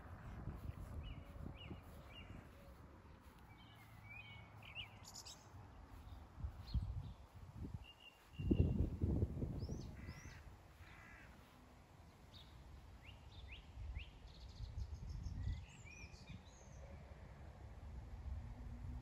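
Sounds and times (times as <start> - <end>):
wind rumble on microphone: 0.0 - 11.2, 13.3 - 16.8, 17.6 - 19.0
wild birds calling and singing: 9.6 - 11.4.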